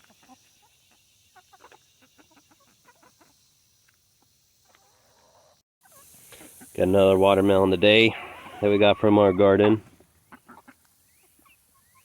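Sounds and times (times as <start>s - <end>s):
hens clucking softly: 0.0s - 12.0s.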